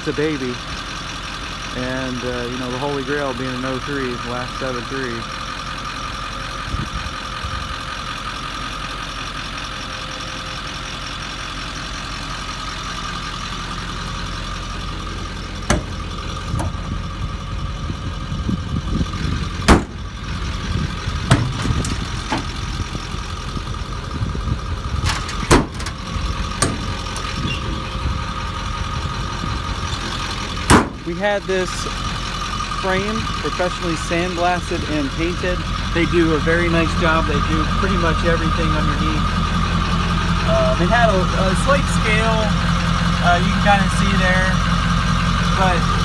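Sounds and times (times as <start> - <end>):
diesel engine idling: 0.0 - 46.0
sharp clicks and knocks: 15.7 - 16.9, 19.6 - 20.2, 21.2 - 22.8, 25.0 - 27.4.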